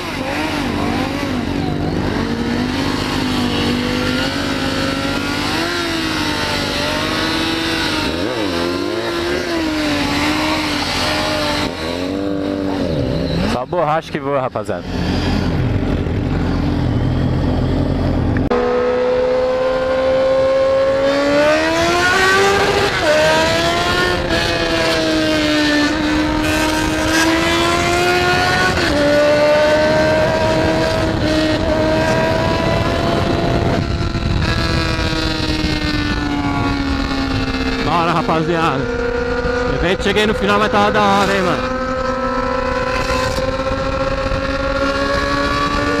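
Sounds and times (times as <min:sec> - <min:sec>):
motorcycle engine shifting gears: 0:00.0 - 0:46.0
wind rush: 0:14.8 - 0:40.6, 0:41.5 - 0:46.0.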